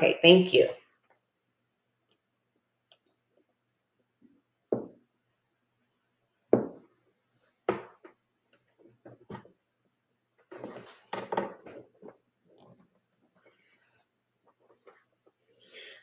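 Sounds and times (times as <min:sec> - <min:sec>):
soft knocks and rustles of tubing: 0:07.6 - 0:09.6, 0:10.4 - 0:13.6.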